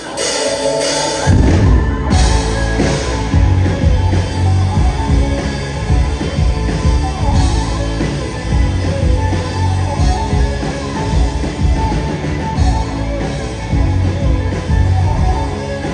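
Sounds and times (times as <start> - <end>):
live rock band playing: 0.0 - 15.9.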